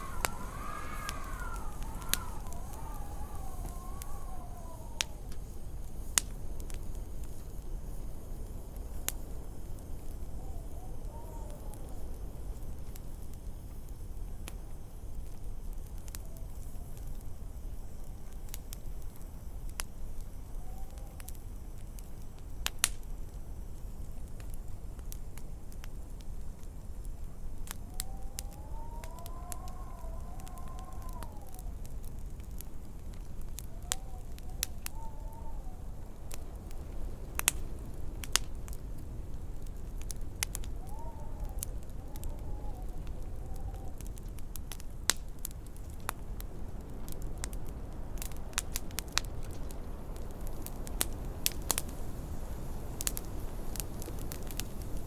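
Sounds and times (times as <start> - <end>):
wind howling: 0.0 - 13.0, 20.1 - 21.5, 27.6 - 55.0
wood fire crackling and popping: 0.0 - 55.0.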